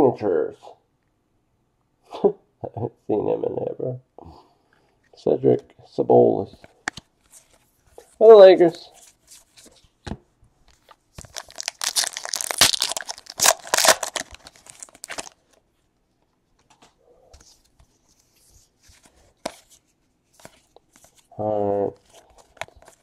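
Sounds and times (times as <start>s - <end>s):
wrapper tearing and crinkling: 11.2s - 15.4s.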